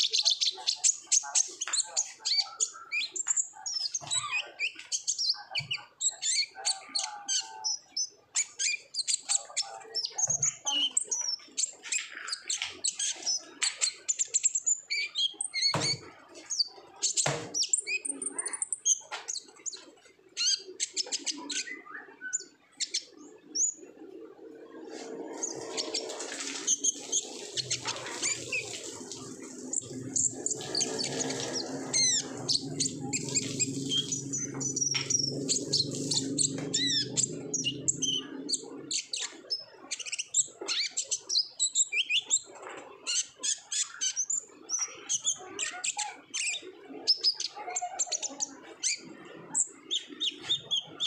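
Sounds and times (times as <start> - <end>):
bird twittering and trilling: 0.0 - 51.0.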